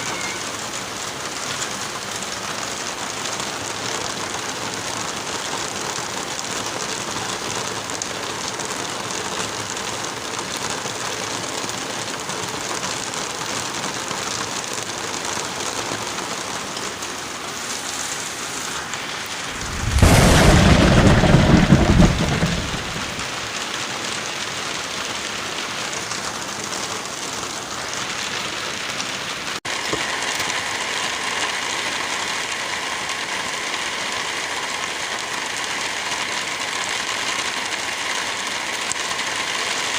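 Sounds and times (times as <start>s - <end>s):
light rain: 0.0s - 39.9s
wind in a forest: 14.5s - 39.7s
loud deep rumble: 19.3s - 23.3s.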